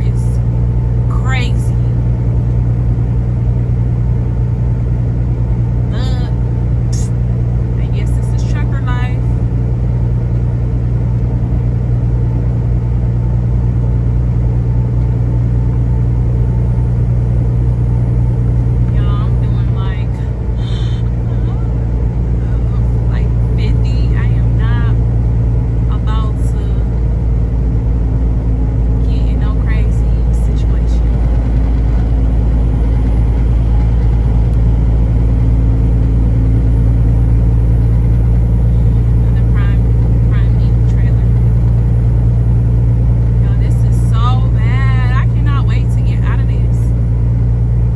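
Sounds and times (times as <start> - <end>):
truck engine and road drone: 0.0 - 47.9.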